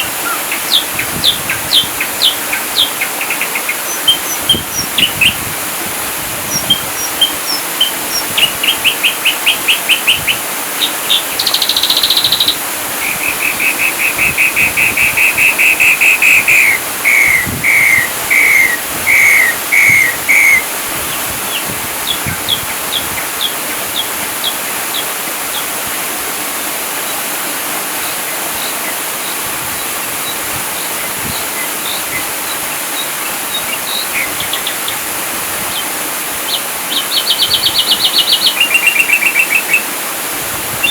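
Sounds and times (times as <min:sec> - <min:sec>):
steady hiss: 0:00.0 - 0:40.9
drongo singing: 0:06.5 - 0:25.7.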